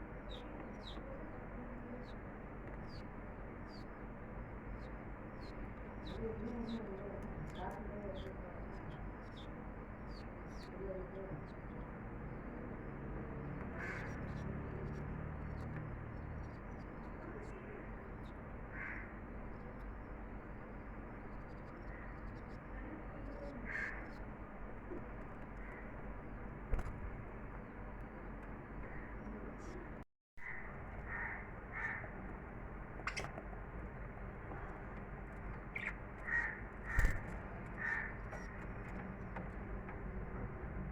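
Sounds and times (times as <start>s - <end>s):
steady background noise: 0.0s - 40.9s
birds chirping and squawking: 13.6s - 19.8s, 20.6s - 26.2s, 30.4s - 32.3s, 33.0s - 33.4s, 35.4s - 39.0s
loud thump: 26.7s - 27.2s
lovebirds chirping harshly: 35.6s - 38.6s.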